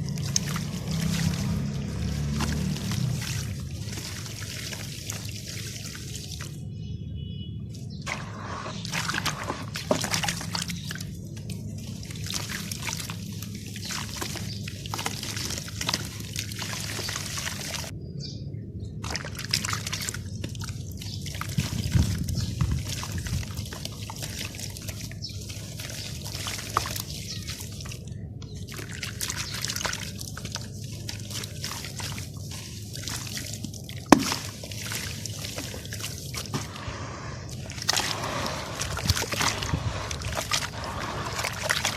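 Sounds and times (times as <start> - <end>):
sand-cement crumbling into water: 34.1 - 35.8.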